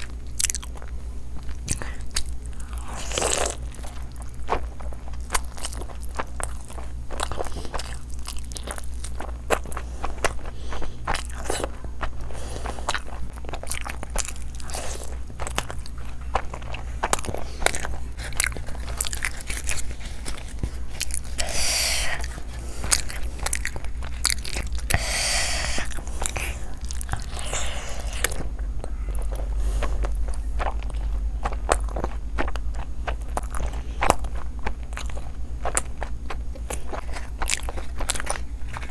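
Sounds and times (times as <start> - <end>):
low hum: 0.0 - 38.9
person chewing wetly: 0.0 - 38.9.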